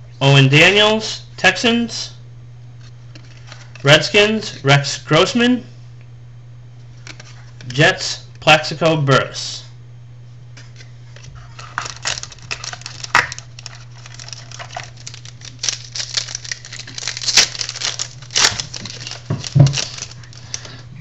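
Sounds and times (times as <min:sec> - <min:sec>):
foil wrapper crinkling and tearing: 0:11.2 - 0:20.8.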